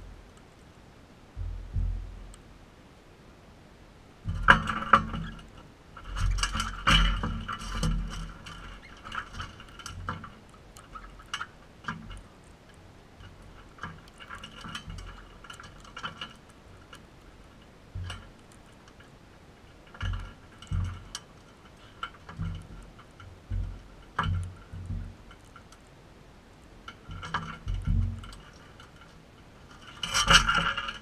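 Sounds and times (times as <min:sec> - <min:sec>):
dull low thumps: 0:01.3 - 0:02.4, 0:22.4 - 0:25.2.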